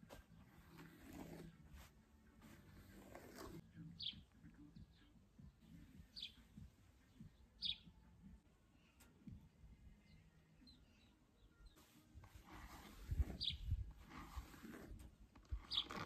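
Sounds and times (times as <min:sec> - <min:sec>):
hairbrush stroking through hair: 0:00.0 - 0:03.6, 0:11.8 - 0:16.0
bird chirping faintly: 0:03.8 - 0:09.3.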